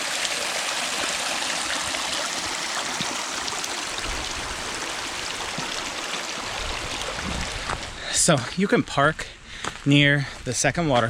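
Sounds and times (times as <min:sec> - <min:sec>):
stream water rushing: 0:00.0 - 0:08.8.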